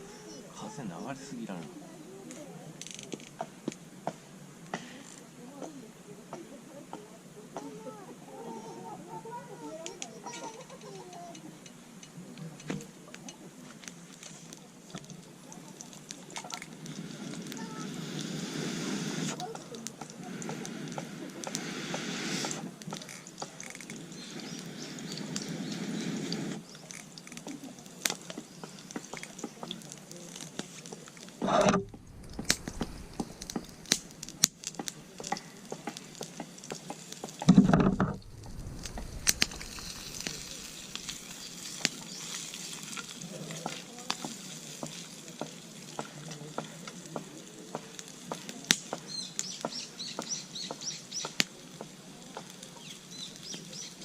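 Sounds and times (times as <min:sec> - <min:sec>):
food sizzling over campfire: 0:00.0 - 0:54.0
loud low thuds: 0:31.4 - 0:34.4, 0:37.5 - 0:41.4.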